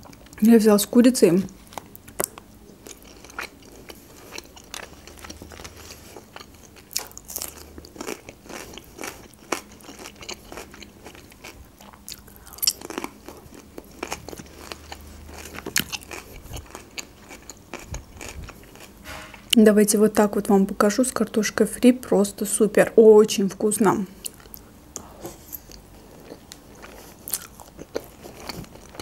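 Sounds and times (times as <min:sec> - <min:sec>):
person chewing wet smacks: 0:01.7 - 0:18.9, 0:24.2 - 0:25.1, 0:25.7 - 0:29.0.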